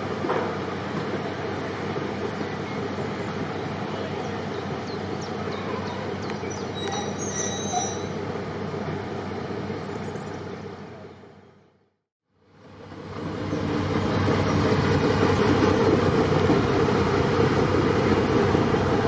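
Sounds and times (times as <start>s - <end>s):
train engine and wheels rumbling: 0.0s - 19.0s
wheels squealing: 5.5s - 8.2s.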